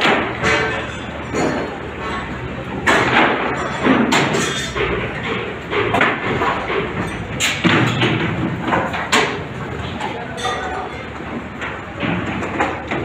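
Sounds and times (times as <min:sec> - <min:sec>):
construction site din: 0:00.0 - 0:13.0
knocks and thuds: 0:02.8 - 0:09.4.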